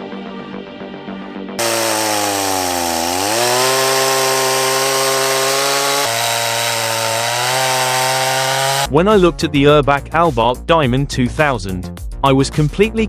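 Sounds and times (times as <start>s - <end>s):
chainsaw cutting wood: 1.6s - 8.9s.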